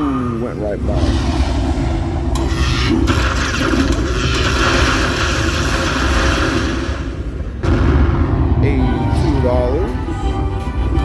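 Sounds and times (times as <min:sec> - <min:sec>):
slot machine rumble: 0:02.4 - 0:07.3.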